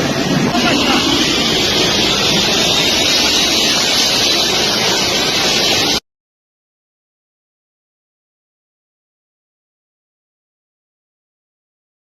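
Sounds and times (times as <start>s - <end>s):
high steady whine: 0.0s - 6.0s
jet engines rushing: 0.0s - 6.0s.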